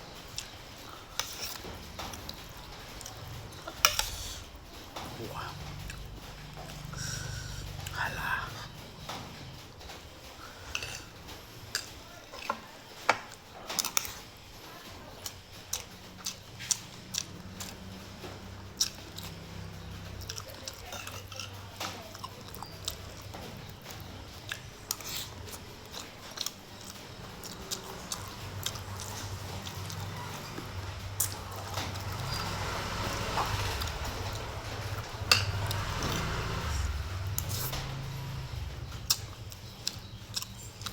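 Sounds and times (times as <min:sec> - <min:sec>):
person chewing crunchy food: 0:15.2 - 0:40.9.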